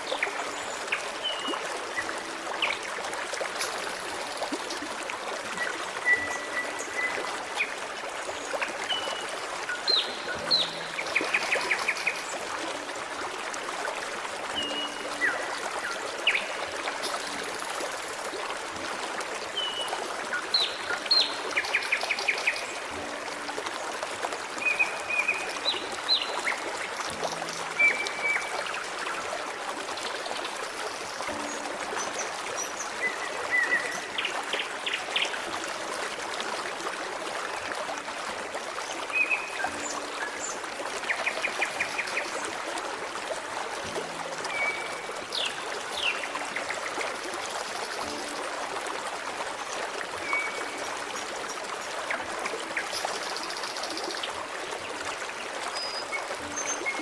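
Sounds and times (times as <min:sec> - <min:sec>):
stream trickling: 0:00.0 - 0:57.0
small birds singing: 0:05.6 - 0:12.4, 0:24.6 - 0:28.7.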